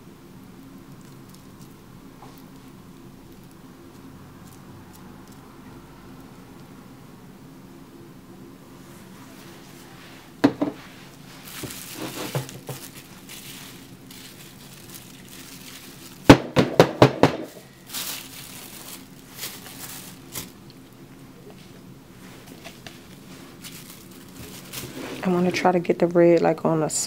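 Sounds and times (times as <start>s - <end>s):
faint steady hum: 0.0s - 27.0s
crinkling and rustling: 0.6s - 5.4s, 9.0s - 16.5s, 17.4s - 26.0s
sharp knocks: 16.3s - 17.6s.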